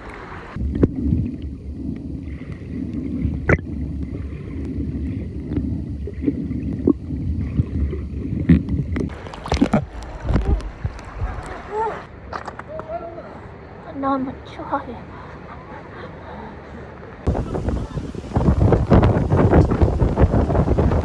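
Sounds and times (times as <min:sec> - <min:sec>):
muffled water sloshing and gurgling: 0:00.0 - 0:12.1, 0:17.0 - 0:21.0.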